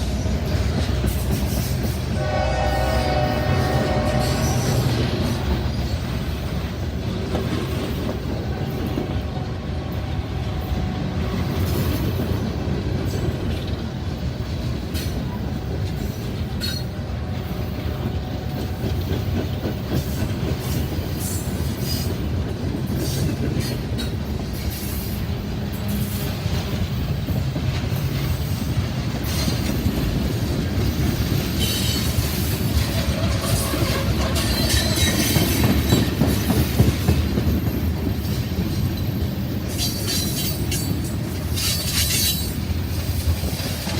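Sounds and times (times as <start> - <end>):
freight train rumbling: 0.0 - 43.9
wheels clicking over rail joints: 10.6 - 43.9.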